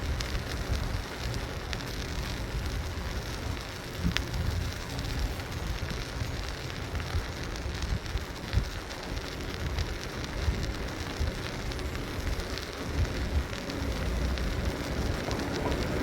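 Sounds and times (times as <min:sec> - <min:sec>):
small ticks and crackles: 0:00.0 - 0:16.0
wind buffeting microphone: 0:00.0 - 0:16.0
tyres rushing on pavement: 0:09.0 - 0:16.0.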